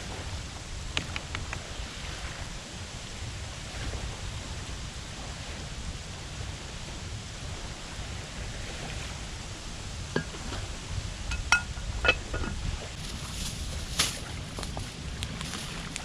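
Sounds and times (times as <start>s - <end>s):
steady low rumble: 0.0s - 16.0s
light ringing clinks: 10.2s - 10.7s, 11.3s - 12.6s.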